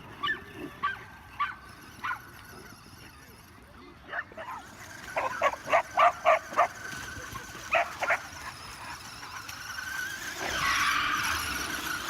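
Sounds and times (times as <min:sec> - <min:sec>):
dog barking: 0:05.2 - 0:06.7.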